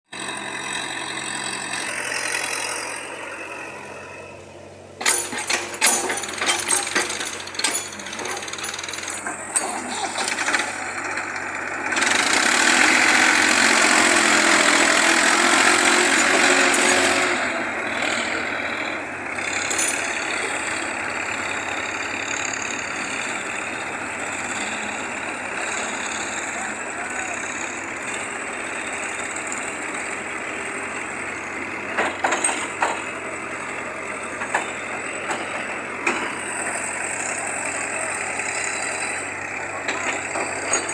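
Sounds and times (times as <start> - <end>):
heavy machinery engines running: 0.1 - 40.9
sharp metallic clanks: 5.0 - 10.8, 31.9 - 33.2.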